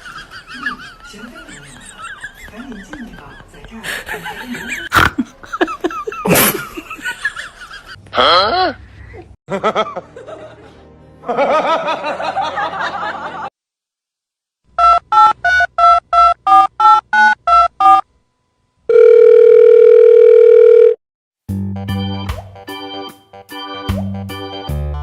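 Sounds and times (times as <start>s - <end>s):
steady telephone tone: 18.9s - 21.0s.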